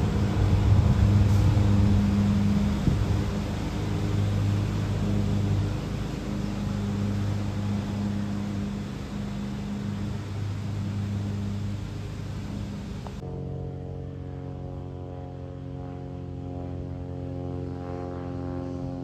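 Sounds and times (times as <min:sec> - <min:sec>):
rushing noise: 0:00.0 - 0:13.2
engine drone: 0:00.0 - 0:19.0.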